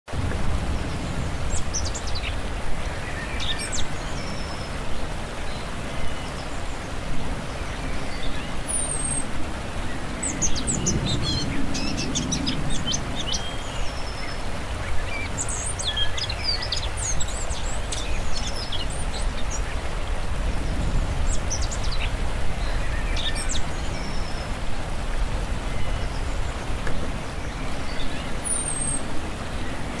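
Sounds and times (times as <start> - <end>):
birds chirping and calling: 9.9 - 25.0, 25.6 - 30.0.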